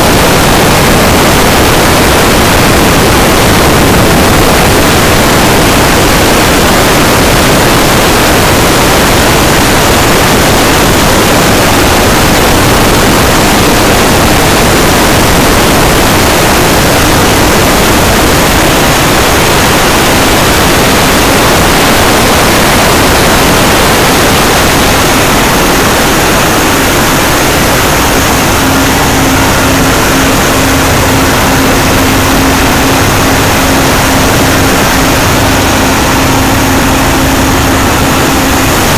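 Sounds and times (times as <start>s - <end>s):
engine-room machinery din: 0.0s - 38.9s
steady hum: 0.0s - 38.9s.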